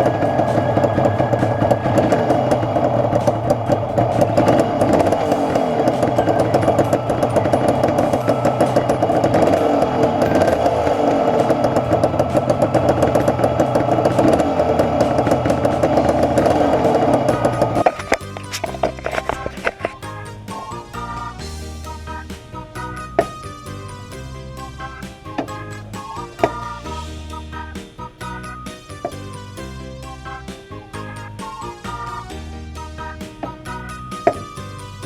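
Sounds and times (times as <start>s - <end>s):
two-stroke engine running: 0.0s - 18.0s.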